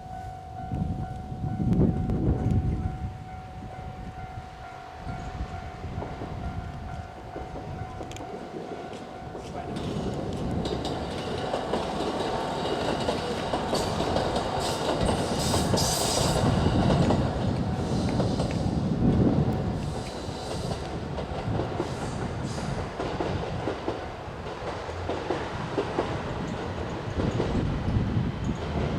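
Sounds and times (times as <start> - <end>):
diesel train running past: 0.0 - 28.9
wheels clattering over rail joints: 6.0 - 18.8.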